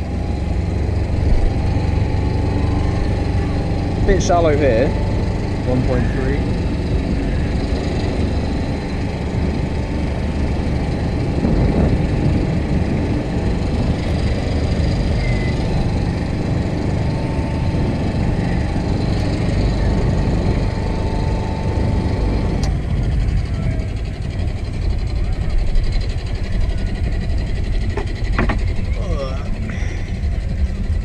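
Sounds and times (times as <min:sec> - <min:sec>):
boat diesel engine running: 0:00.0 - 0:31.0
faint high whine: 0:13.2 - 0:30.9.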